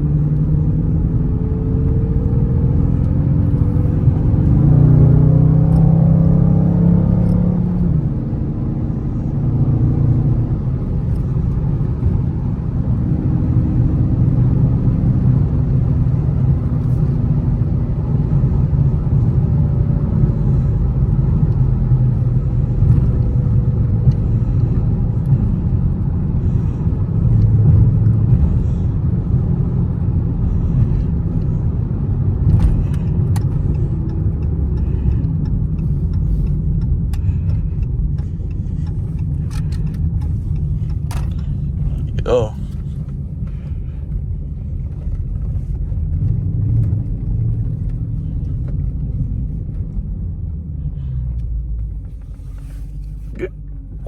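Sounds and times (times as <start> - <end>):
car engine deep rumble: 0.0 - 54.0
road noise: 0.0 - 54.0.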